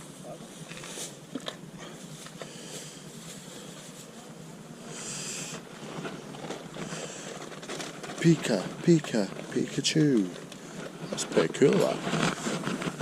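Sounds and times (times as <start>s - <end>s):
hissing rustle: 0.0s - 13.0s.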